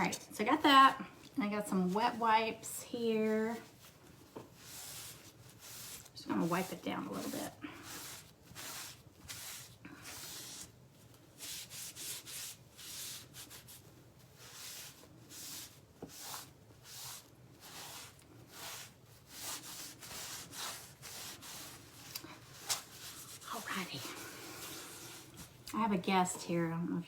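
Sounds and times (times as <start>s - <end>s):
wet wipe rubbing on wood board: 4.5s - 10.8s, 11.4s - 25.4s.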